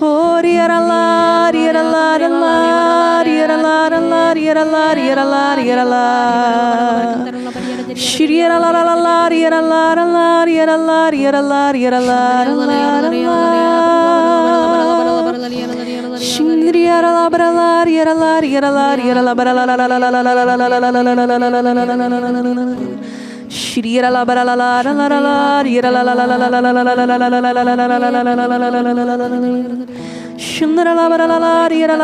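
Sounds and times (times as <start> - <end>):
person singing slowly: 0.0 - 23.0, 23.6 - 32.0
singer breathing: 7.3 - 8.0, 22.8 - 23.6, 29.9 - 30.4.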